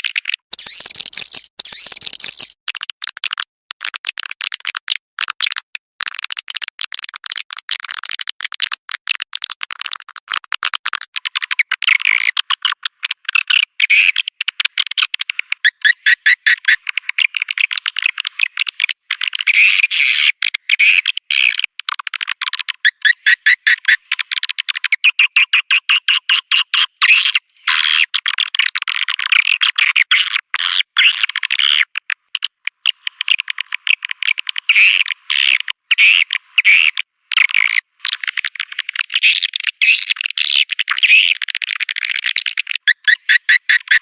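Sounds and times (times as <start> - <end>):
swiftlet calls chirping: 0.5 - 3.4.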